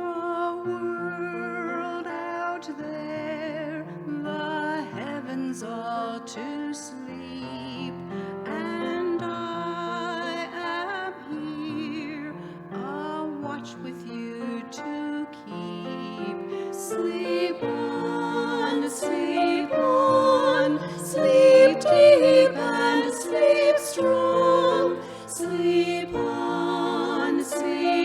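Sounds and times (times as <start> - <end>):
piano: 0.0 - 28.0
women singing: 0.0 - 28.0
flute: 19.3 - 25.5.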